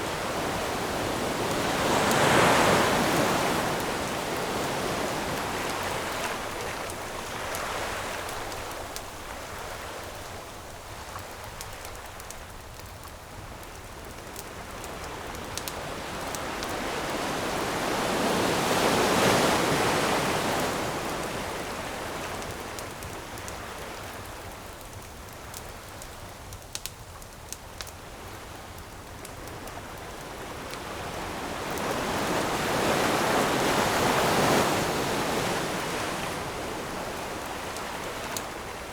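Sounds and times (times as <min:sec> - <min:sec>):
ocean waves washing: 0:00.0 - 0:11.3, 0:14.8 - 0:22.6, 0:30.2 - 0:38.9
campfire crackling: 0:00.0 - 0:17.9, 0:19.7 - 0:38.9.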